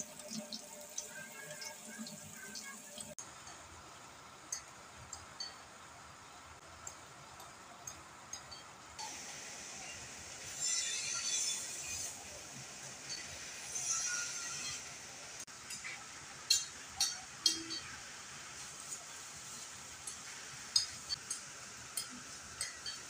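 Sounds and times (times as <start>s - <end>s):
raindrops ticking: 0.0s - 5.9s, 6.5s - 9.0s.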